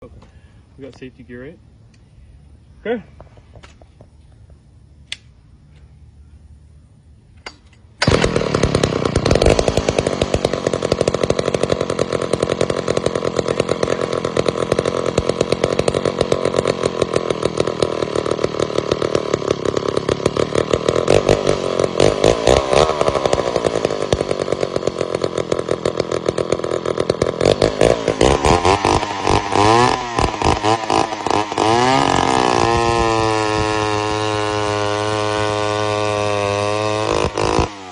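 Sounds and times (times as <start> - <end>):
chainsaw engine revving: 8.0 - 37.9.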